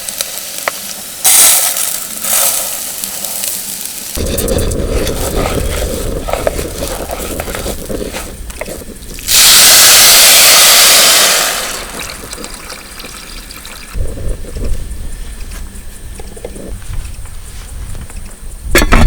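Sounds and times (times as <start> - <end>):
rush of water: 9.3 - 14.0.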